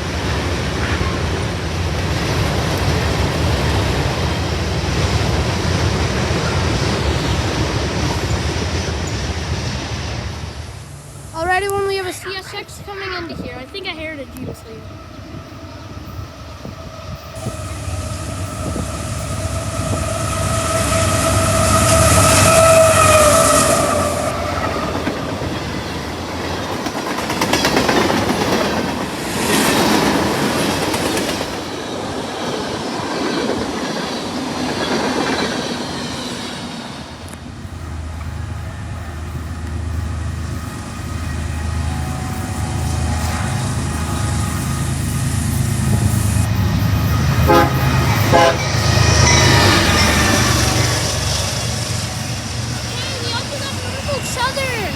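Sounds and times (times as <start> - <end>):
locomotive rumble: 0.0 - 54.9
train wheels clattering on rails: 15.6 - 54.9
train horn: 17.1 - 25.3, 38.2 - 54.7.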